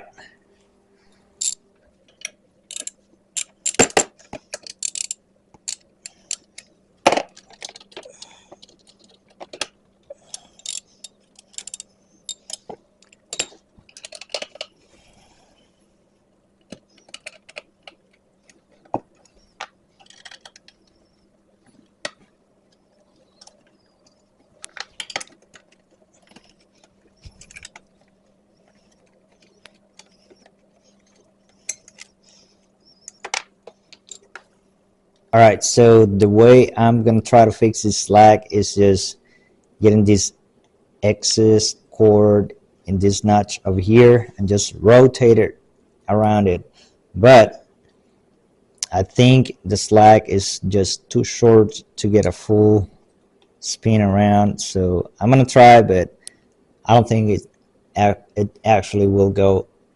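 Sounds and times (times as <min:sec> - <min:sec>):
faint steady hum: 0:00.0 - 0:59.9
hand tools and parts clattering: 0:01.4 - 0:15.2, 0:16.7 - 0:20.9, 0:24.6 - 0:28.1, 0:28.7 - 0:32.3, 0:33.0 - 0:34.5.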